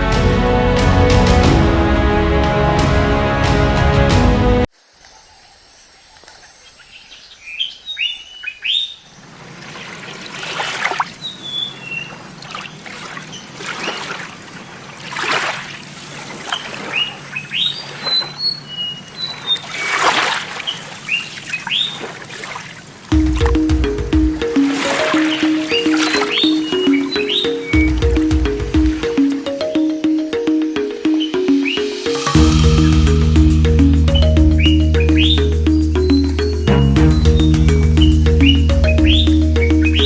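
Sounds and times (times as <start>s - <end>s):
running water splashing: 19.6s - 40.0s
birds chirping: 23.1s - 40.0s.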